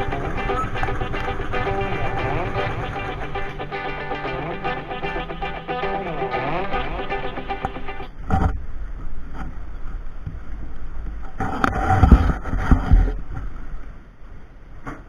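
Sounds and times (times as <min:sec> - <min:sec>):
music track: 0:00.0 - 0:08.1.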